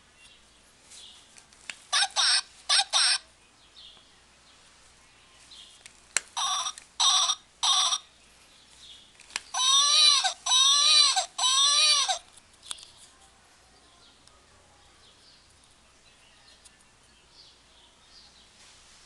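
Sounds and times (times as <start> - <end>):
toy baby crying wails: 1.9 - 3.2, 6.4 - 8.0, 9.5 - 12.3
toy voice short bursts: 1.9 - 3.2, 6.4 - 8.0, 9.6 - 12.2.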